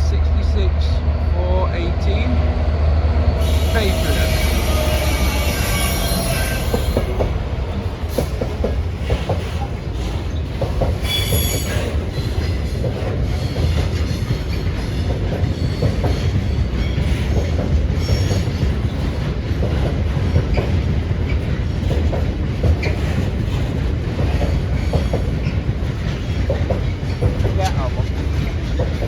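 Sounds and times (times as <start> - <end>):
train wheels rumbling on rail: 0.0 - 29.0
high-pitched wheel squeals: 3.4 - 7.1, 11.0 - 11.9.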